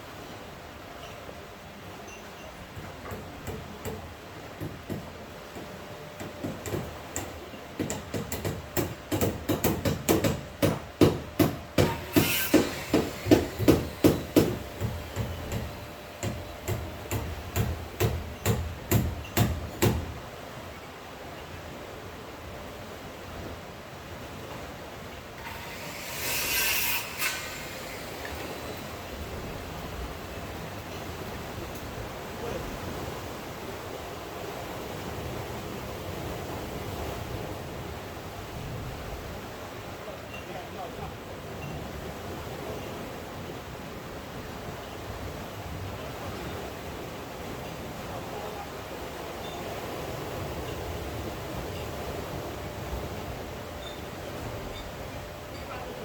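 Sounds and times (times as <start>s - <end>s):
sea surf: 0.0s - 56.0s
steady background noise: 0.0s - 56.0s
rapid hammering knocks: 3.1s - 20.2s
rain: 27.4s - 54.8s.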